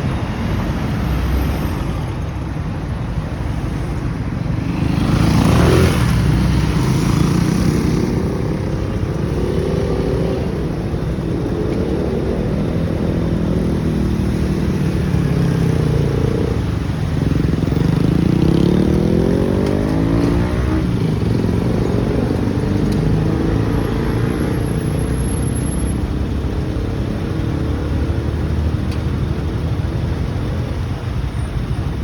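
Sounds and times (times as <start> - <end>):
motorcycle engine accelerating: 4.8 - 24.7.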